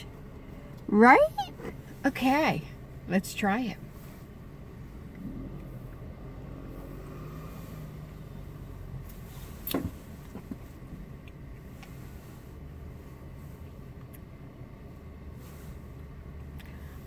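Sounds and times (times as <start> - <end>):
car cabin rumble: 0.0 - 17.0.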